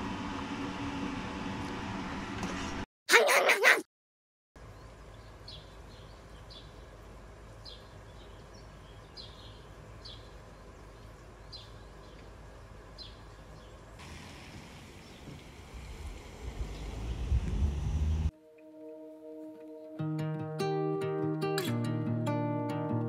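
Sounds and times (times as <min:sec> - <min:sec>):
small bird chirping: 0:07.6 - 0:13.8.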